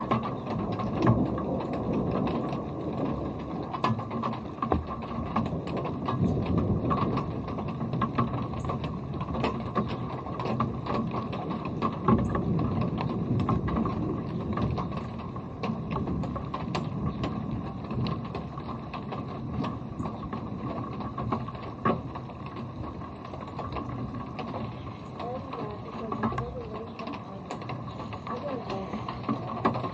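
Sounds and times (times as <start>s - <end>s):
low rumble: 0.0s - 29.9s
raindrops ticking near microphone: 0.0s - 29.9s
rain hissing: 15.8s - 29.9s.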